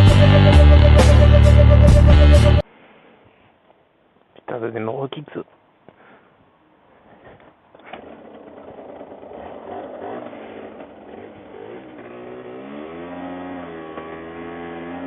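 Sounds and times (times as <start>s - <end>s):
small two-stroke engine revving: 7.9s - 15.0s.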